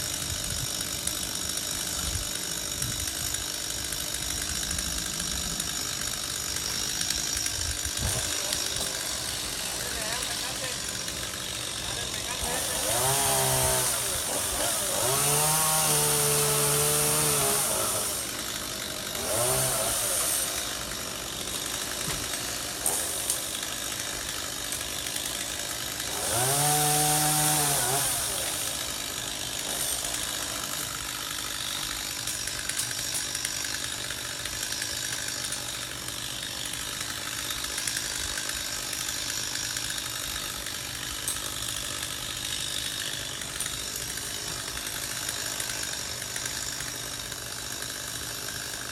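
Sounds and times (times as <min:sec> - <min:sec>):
chainsaw engine revving: 0:00.0 - 0:48.9.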